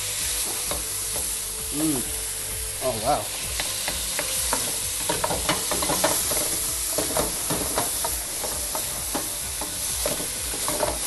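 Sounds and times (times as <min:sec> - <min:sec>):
food sizzling in a wok: 0:00.0 - 0:11.0
wooden spoon scraping a wok: 0:03.3 - 0:11.0.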